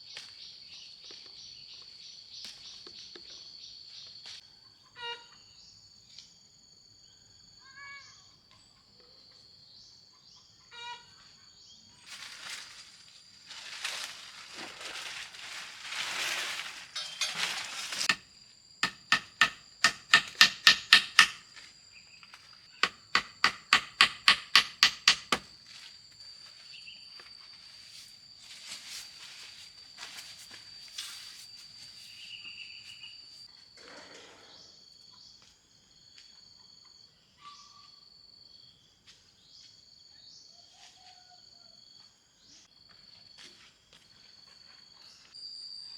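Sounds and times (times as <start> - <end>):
hammer driving nails into wood: 18.8 - 21.4, 22.8 - 25.4
rough rasping: 18.8 - 21.4, 22.8 - 25.4.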